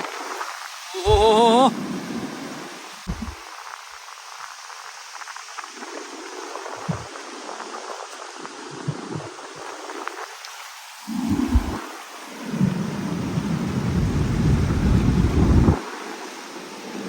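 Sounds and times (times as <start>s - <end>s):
heavy rain: 0.0s - 3.6s, 11.1s - 17.0s
wind buffeting microphone: 12.6s - 15.8s.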